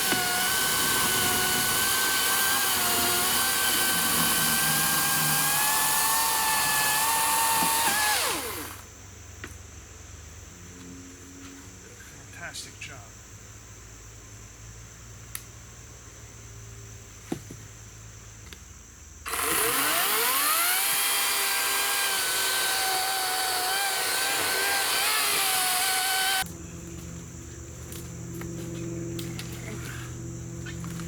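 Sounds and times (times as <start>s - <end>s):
chainsaw cutting log: 0.0s - 8.9s, 19.3s - 26.5s.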